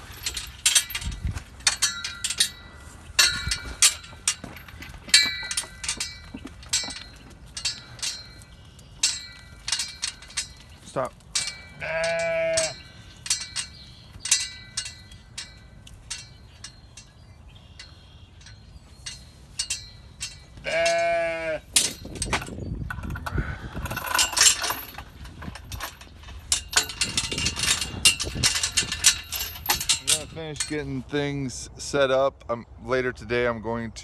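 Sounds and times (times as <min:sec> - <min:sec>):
clattering and rustling: 0:00.0 - 0:31.1
sheep bleating: 0:11.7 - 0:12.8, 0:20.6 - 0:21.7.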